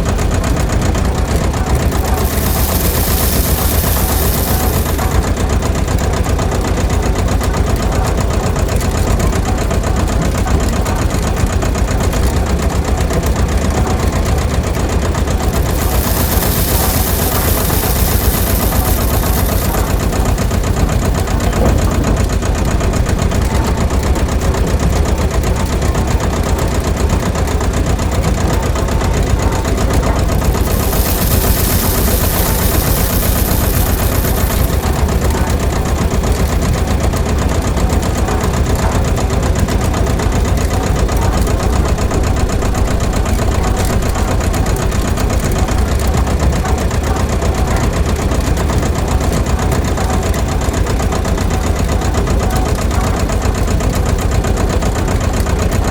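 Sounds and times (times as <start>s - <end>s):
rice mill motor chattering: 1.6s - 5.6s, 15.4s - 21.0s, 29.9s - 37.2s
bright hiss: 1.8s - 5.3s, 15.5s - 20.6s, 30.4s - 35.7s.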